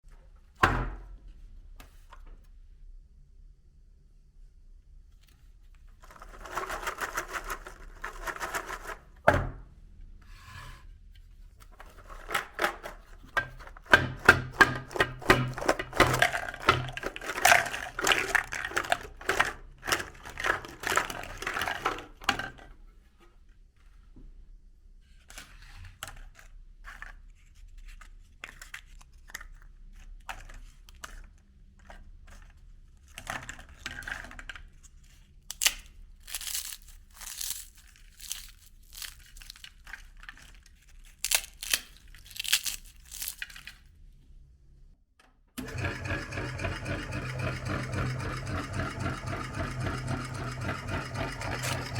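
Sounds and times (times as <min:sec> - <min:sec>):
meat grinder crunching cone: 0:13.6 - 0:22.2, 0:45.6 - 0:51.9.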